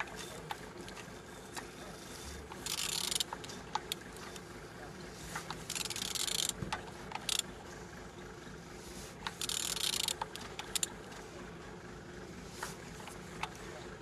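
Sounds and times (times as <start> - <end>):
ratchet wrench clicking: 2.6 - 4.0, 5.7 - 7.4, 9.3 - 10.9.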